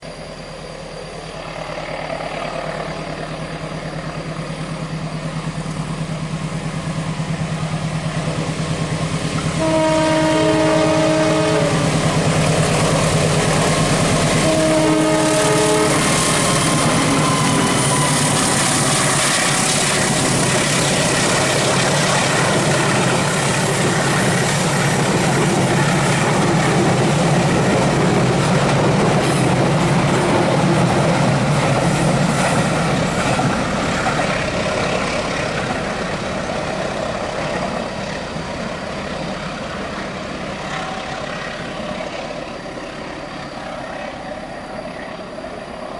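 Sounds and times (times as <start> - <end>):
train engine running: 0.0 - 45.9
train horn blast: 9.5 - 12.2, 14.2 - 19.7
wheels clattering on rail: 11.8 - 42.6.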